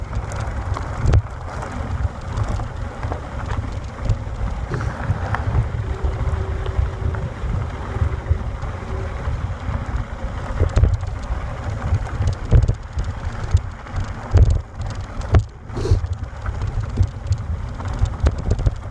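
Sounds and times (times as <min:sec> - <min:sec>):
wind buffeting microphone: 0:00.0 - 0:18.9
knocks and rattles: 0:10.5 - 0:18.9.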